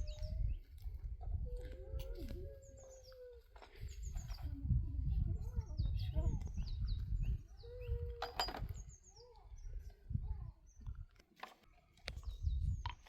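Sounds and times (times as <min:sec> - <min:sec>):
small birds chirping: 0:00.0 - 0:13.0
sharp knocks and clinks: 0:08.2 - 0:08.8.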